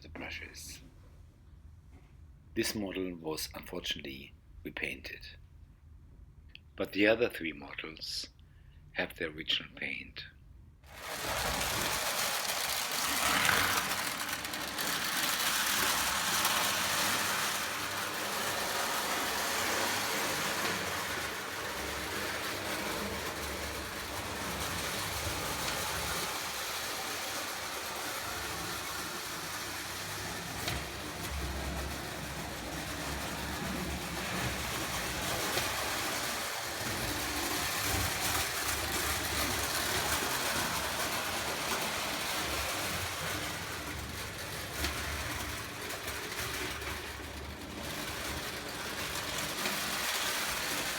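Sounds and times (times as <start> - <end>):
toy train motor whirring: 10.9 - 50.9.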